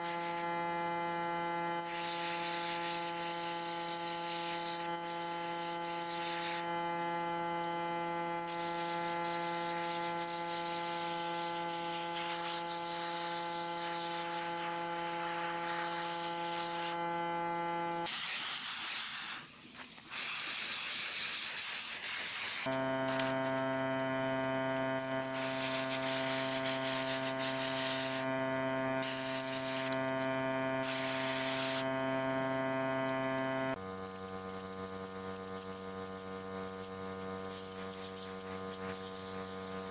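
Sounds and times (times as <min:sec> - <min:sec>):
small electric motor running: 0:00.0 - 0:18.9, 0:20.0 - 0:39.9
steady spraying hiss: 0:18.1 - 0:23.2.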